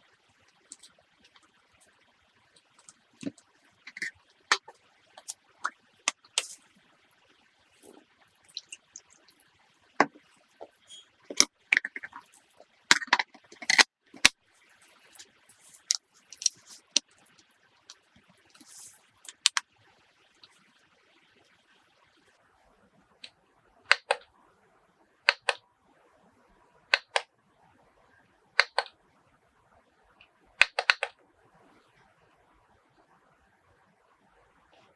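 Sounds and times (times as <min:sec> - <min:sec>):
hard objects clicking and knocking: 0:11.3 - 0:12.2, 0:12.9 - 0:14.3, 0:15.7 - 0:17.0.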